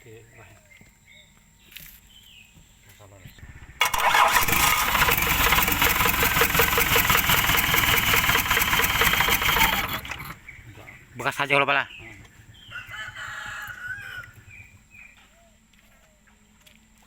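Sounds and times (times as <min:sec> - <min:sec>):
diesel engine cranking on starter: 0:03.4 - 0:11.2.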